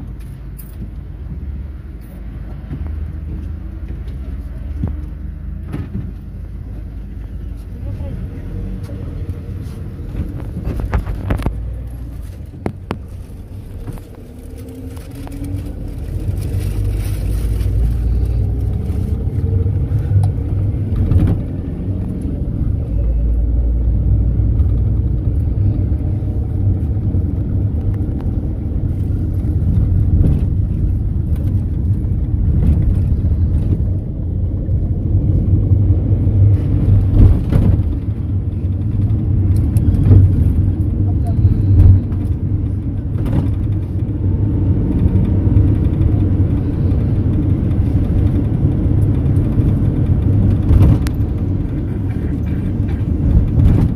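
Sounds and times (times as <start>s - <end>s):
engine and road rumble: 0.0s - 53.9s
rattles and knocks: 36.4s - 41.0s.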